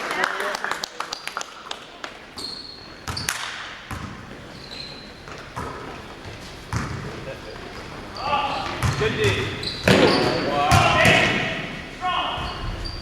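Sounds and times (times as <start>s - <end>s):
sneakers squeaking on court: 2.4s - 11.6s, 12.4s - 13.0s
basketball bouncing on gym floor: 3.0s - 4.4s, 5.3s - 7.2s, 8.6s - 11.5s.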